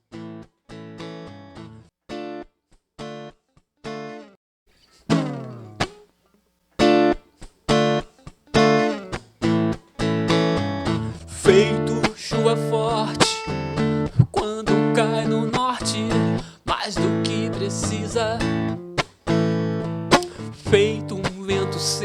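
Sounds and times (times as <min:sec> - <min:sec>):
acoustic guitar strummed chords: 0:05.0 - 0:06.0, 0:06.8 - 0:22.0.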